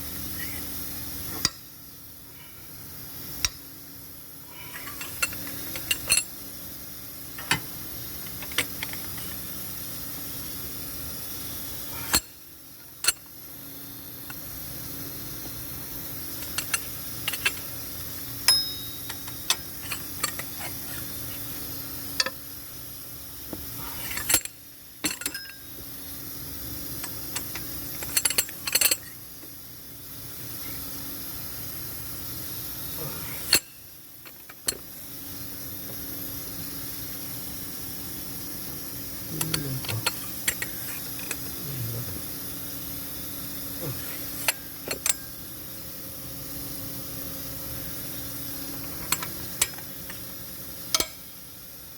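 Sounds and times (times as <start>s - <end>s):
steady background hum: 0.0s - 51.9s
metal tools clinking: 4.6s - 6.4s, 12.9s - 13.3s, 16.4s - 17.8s, 18.4s - 21.6s, 23.8s - 25.8s, 27.0s - 29.2s, 39.3s - 41.6s, 43.8s - 45.4s, 48.7s - 50.2s, 50.9s - 51.4s.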